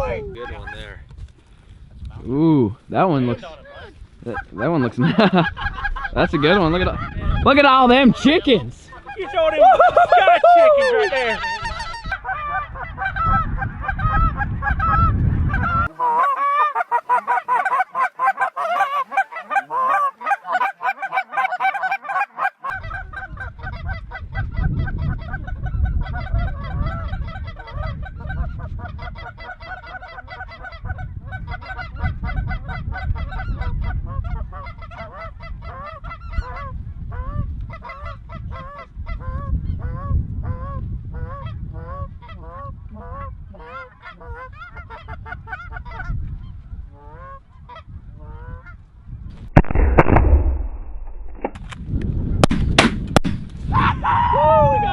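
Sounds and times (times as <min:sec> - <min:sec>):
geese honking: 0:10.6 - 0:15.0, 0:15.6 - 0:23.4.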